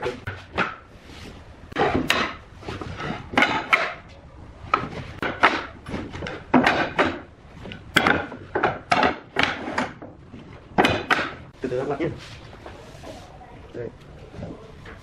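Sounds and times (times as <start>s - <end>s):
wooden parts knocking together: 4.7s - 11.5s.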